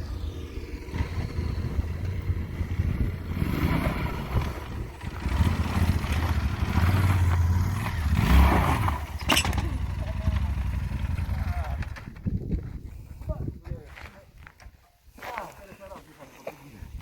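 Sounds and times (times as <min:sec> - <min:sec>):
dirt bike engine revving: 0:00.0 - 0:12.1.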